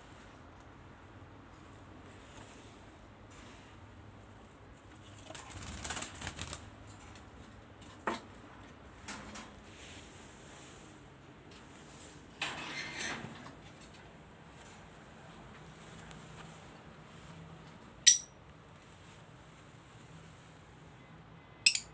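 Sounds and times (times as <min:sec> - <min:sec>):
birds tapping and rustling in cage: 0:04.7 - 0:10.7, 0:11.4 - 0:19.3.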